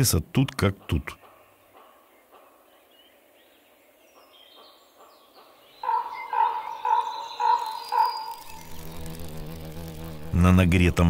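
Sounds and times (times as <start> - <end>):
faint bird chirps: 0.8 - 9.3
bird calling repeated notes: 5.8 - 9.4.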